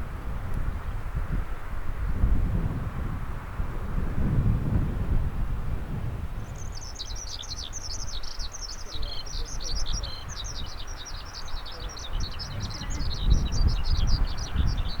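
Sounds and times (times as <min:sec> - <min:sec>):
songbird twittering: 0:06.4 - 0:15.0.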